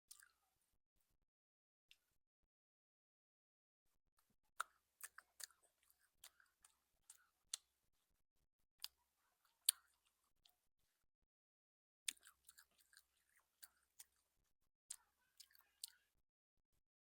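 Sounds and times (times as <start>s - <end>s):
crunchy chewing and biting food: 12.1s - 14.2s.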